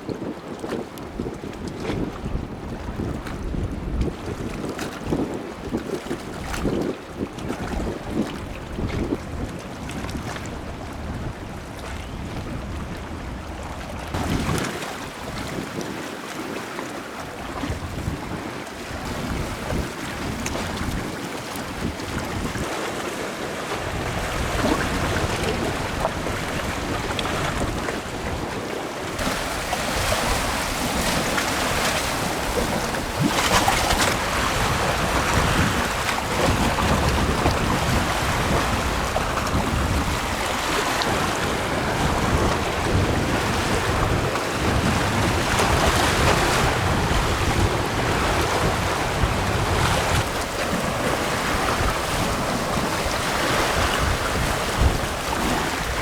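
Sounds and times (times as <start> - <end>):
wind: 0.0 - 56.0
sea waves washing onto shore: 13.4 - 56.0.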